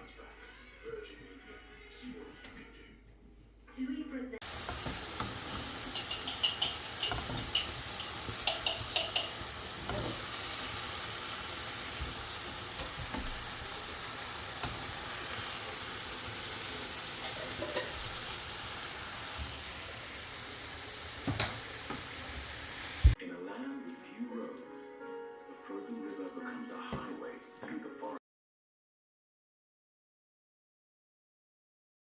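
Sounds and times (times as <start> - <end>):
food sizzling in a pan: 4.4 - 23.2
utensil clinking against pan: 4.7 - 10.3, 17.2 - 18.0.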